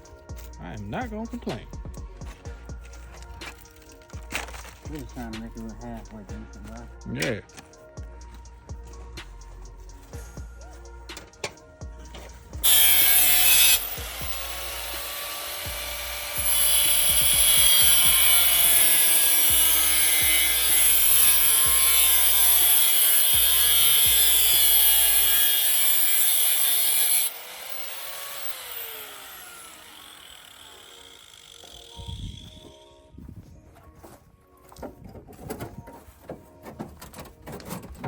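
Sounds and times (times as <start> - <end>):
angle grinder grinding steel: 12.1 - 33.0
grinder winding down: 12.6 - 32.6.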